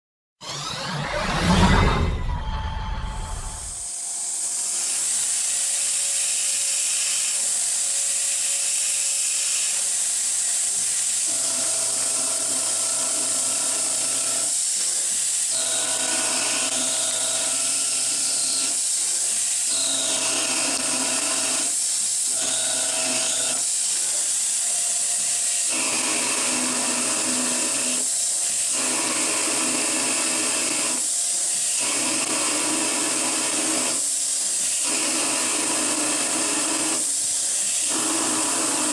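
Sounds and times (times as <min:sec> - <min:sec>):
whirring pitched tones: 0:00.4 - 0:04.0.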